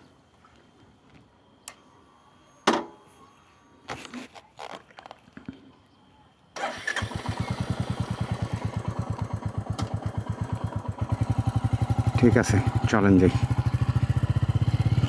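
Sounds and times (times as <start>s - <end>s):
motorcycle engine starting and idling: 6.6s - 15.0s.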